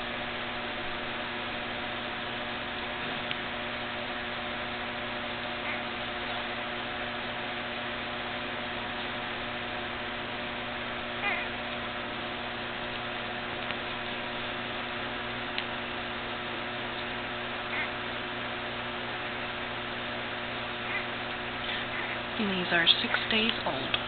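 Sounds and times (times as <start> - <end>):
steady hum and hiss: 0.0 - 24.0.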